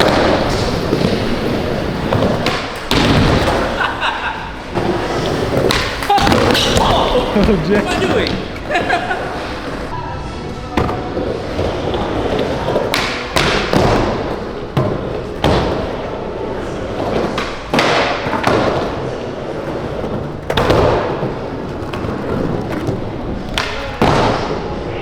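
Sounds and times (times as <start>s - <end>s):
skateboards landing and slapping: 0.0s - 9.9s, 10.8s - 24.9s
skateboard wheels rolling: 0.0s - 25.0s.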